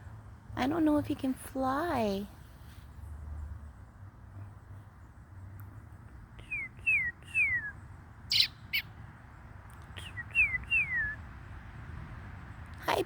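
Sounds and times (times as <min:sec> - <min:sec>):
bird whistling descending notes: 0:06.5 - 0:07.7, 0:10.0 - 0:11.2.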